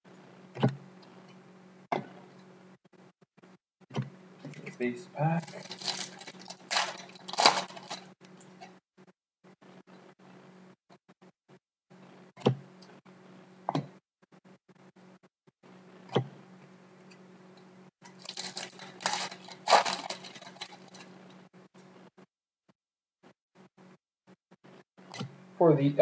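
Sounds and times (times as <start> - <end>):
wrapper crinkling and rustling: 5.4 - 8.2, 18.1 - 21.3.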